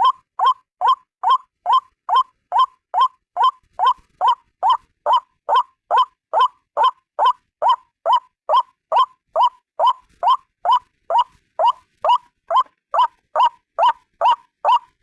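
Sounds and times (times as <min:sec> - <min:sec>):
waterhen calling: 0:00.0 - 0:14.9.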